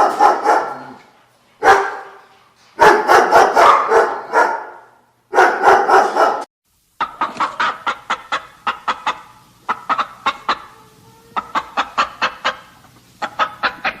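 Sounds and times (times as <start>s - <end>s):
dog barking: 0.0s - 1.0s, 1.6s - 2.2s, 2.8s - 6.5s
hen clucking: 7.0s - 14.0s.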